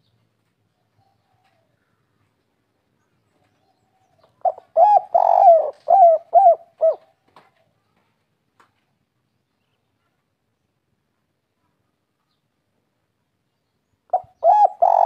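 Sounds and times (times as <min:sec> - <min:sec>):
dove cooing: 0:04.0 - 0:07.2, 0:14.1 - 0:15.0.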